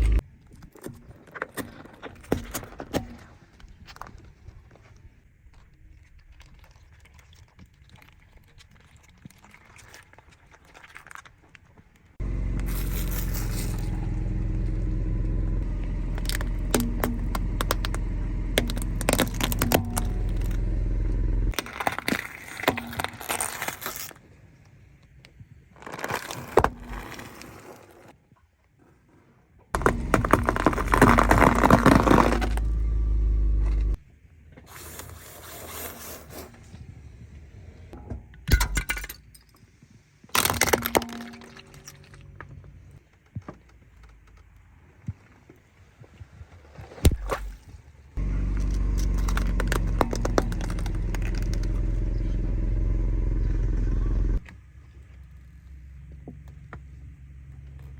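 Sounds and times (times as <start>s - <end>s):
car engine rumble: 0.0s - 0.2s, 12.2s - 21.6s, 29.8s - 34.2s, 48.0s - 57.9s
tyres crushing objects: 15.6s - 24.2s, 29.8s - 32.8s, 40.2s - 42.3s, 46.8s - 52.0s.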